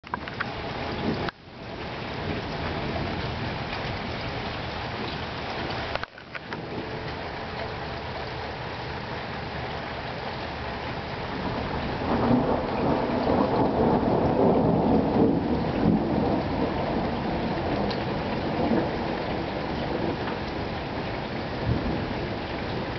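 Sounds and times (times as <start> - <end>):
steady rain falling: 0.0 - 22.9
rolling thunder rumble: 0.5 - 5.2, 11.0 - 22.9.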